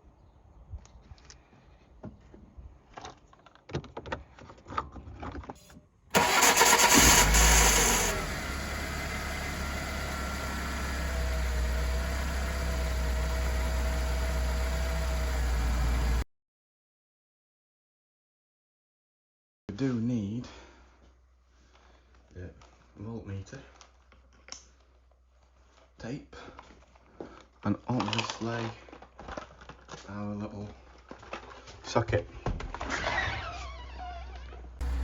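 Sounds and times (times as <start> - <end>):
car engine starting and idling: 6.1 - 16.2, 34.8 - 35.0.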